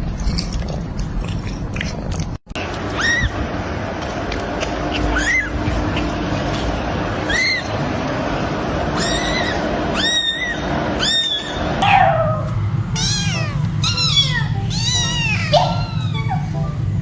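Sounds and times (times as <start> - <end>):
steady low hum: 0.0 - 17.0
cat meowing: 2.9 - 3.4, 5.0 - 5.6, 7.2 - 7.7, 8.9 - 16.8.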